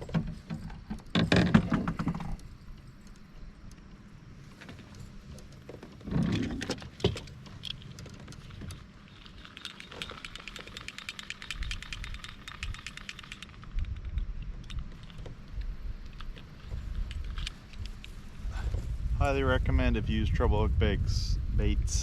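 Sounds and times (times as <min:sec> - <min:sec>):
small chains jangling: 0:08.8 - 0:15.2.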